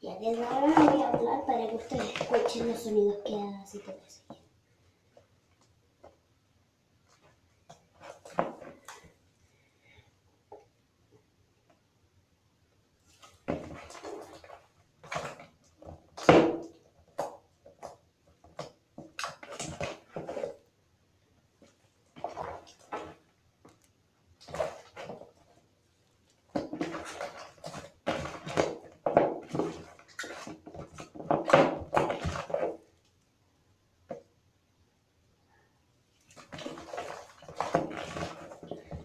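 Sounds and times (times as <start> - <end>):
wet slime squelching and popping: 0.2 - 2.9, 13.1 - 20.7, 21.5 - 33.2, 36.1 - 39.0.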